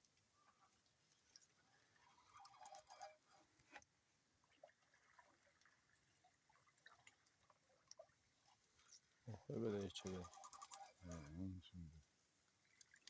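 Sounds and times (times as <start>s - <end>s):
faint clicks: 6.8s - 11.3s.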